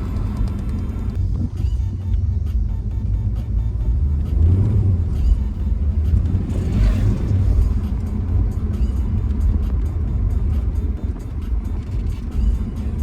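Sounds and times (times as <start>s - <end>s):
car engine and exhaust rumbling: 0.0s - 13.0s.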